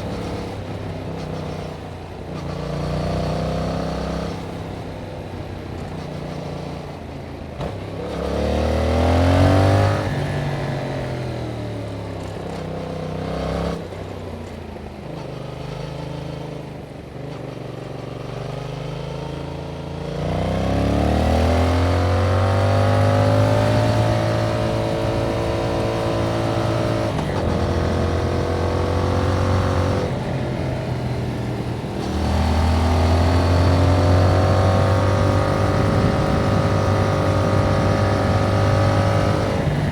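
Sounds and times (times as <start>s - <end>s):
motorcycle engine revving: 0.0s - 14.2s, 15.0s - 39.9s.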